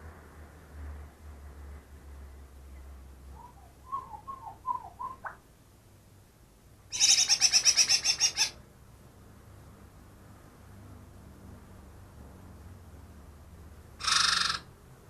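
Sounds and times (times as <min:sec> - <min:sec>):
bird warbling: 0:03.3 - 0:05.4, 0:06.9 - 0:08.6, 0:14.0 - 0:14.7
bird rattling trill: 0:14.0 - 0:14.6.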